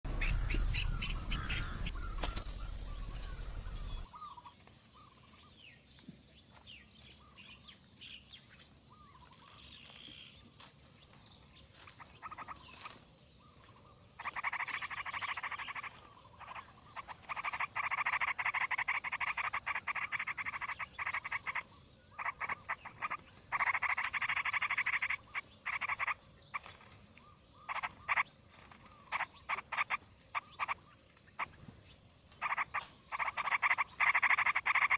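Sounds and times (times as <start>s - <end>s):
low rumble: 0.0s - 4.0s
high chirps: 0.1s - 4.1s
frogs trilling: 0.1s - 5.2s, 12.0s - 34.9s.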